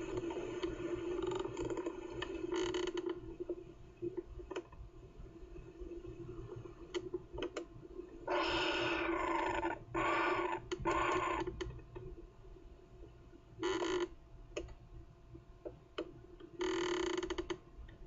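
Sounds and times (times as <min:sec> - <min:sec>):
faint clicks: 0:06.0 - 0:08.2, 0:14.0 - 0:14.8.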